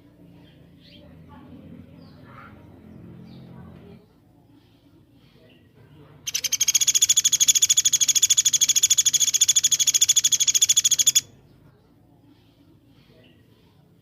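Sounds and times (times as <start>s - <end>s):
songbird rapid repeated call: 6.3s - 11.3s.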